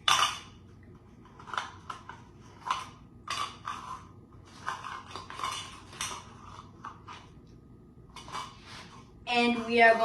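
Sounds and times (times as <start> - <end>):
cookies and dishes clattering: 0.0 - 0.6, 1.2 - 7.3.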